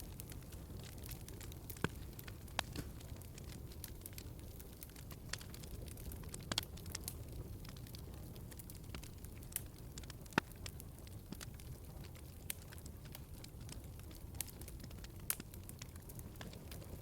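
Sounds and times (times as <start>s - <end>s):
fire crackling: 0.0s - 17.0s
low rumble of flames: 0.0s - 17.0s
sharp pops of fire: 0.1s - 7.8s.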